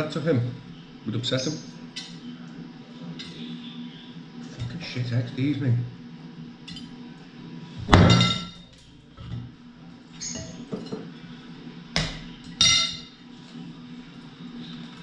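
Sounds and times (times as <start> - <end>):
cutlery and crockery clinking: 1.9 - 2.3, 3.2 - 3.5, 6.6 - 7.0, 7.9 - 9.5, 10.2 - 11.1, 12.0 - 13.2.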